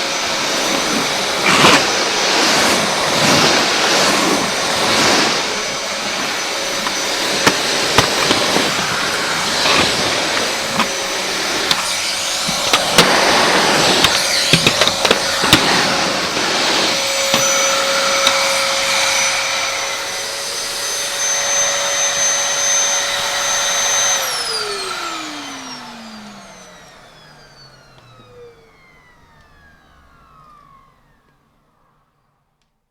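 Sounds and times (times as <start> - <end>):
vacuum motor winding down: 0.0 - 32.7
vacuum cleaner whining: 0.0 - 32.9
sharp clicks and knocks: 11.6 - 18.4.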